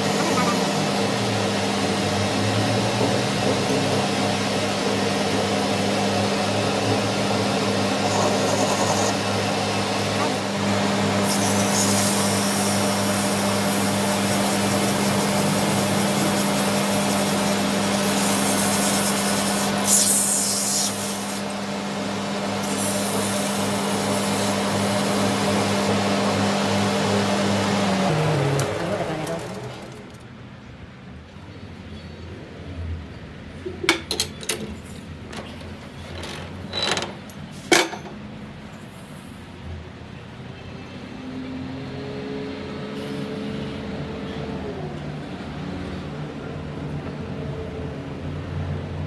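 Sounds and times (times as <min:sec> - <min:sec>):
grinding on metal: 0:00.0 - 0:30.2
power tool motor hum: 0:00.0 - 0:30.2.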